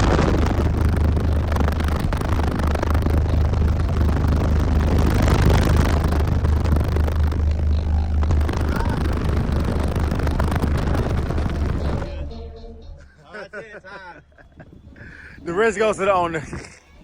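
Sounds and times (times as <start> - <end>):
subwoofers playing deep bass: 0.0 - 13.0.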